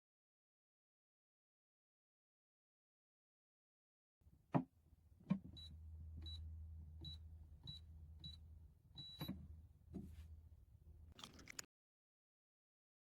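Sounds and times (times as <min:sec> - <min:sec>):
low motor hum: 0:04.2 - 0:11.2
short electronic beeps with clicks: 0:09.0 - 0:09.4.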